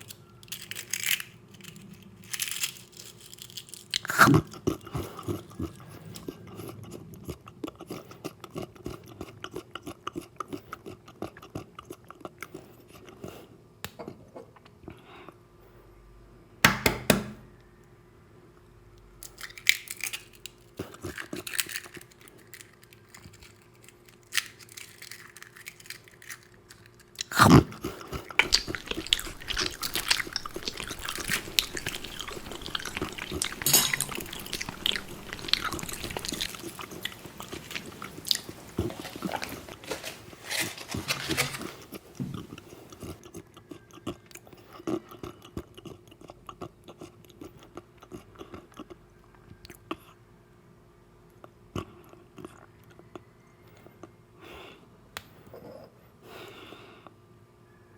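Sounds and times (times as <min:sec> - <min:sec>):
chewing and crunchy bites: 0:00.0 - 0:14.8, 0:19.2 - 0:50.2, 0:51.4 - 0:54.2
faint steady hum: 0:00.0 - 0:57.9
loud bite: 0:27.2 - 0:39.8.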